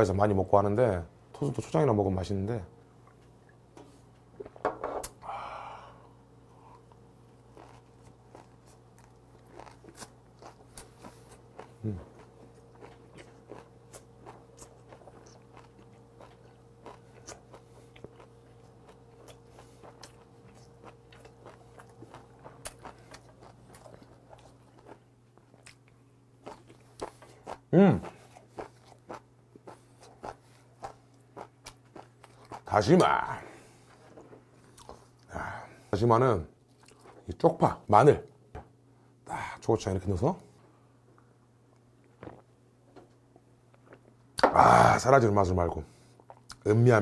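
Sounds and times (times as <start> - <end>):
faint steady hum: 0.0 - 47.0
person humming mm: 5.1 - 6.8, 11.8 - 12.1, 44.4 - 45.0
breathy exhale: 5.2 - 6.8
close chewing and crunching: 6.6 - 35.5, 36.6 - 37.6, 41.7 - 42.6, 45.9 - 46.8.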